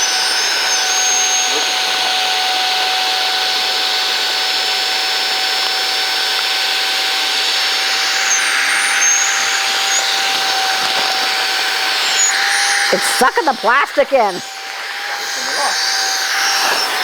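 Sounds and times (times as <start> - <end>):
handheld vacuum motor whine: 0.0 - 17.0
short high squeaks: 7.8 - 17.0.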